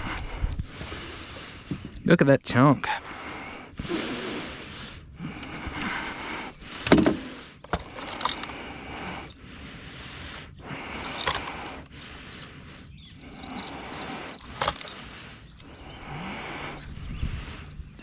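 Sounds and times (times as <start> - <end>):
scraping and rustling: 11.0 - 11.9, 13.8 - 15.2.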